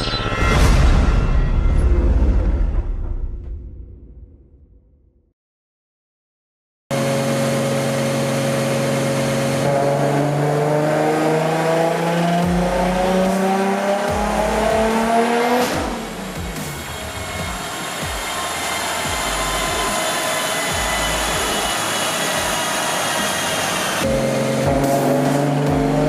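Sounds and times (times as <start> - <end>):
car engine revving on a dyno: 6.9 - 26.0.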